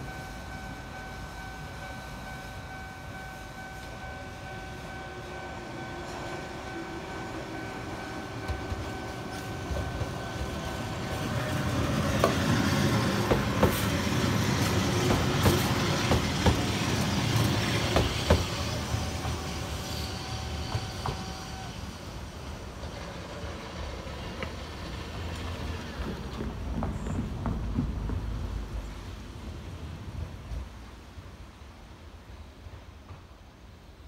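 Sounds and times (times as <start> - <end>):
level-crossing warning bell: 0.0 - 12.0
electric train passing: 0.0 - 34.0
wheels clacking on rail joints: 6.0 - 19.7, 20.3 - 21.6, 22.7 - 28.9.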